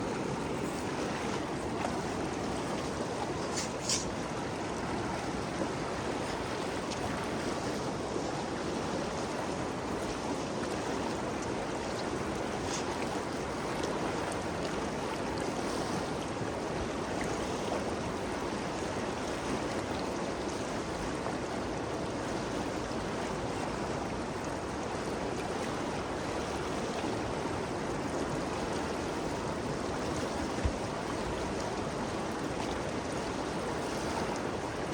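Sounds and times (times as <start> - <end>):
river water rushing: 0.0 - 18.4.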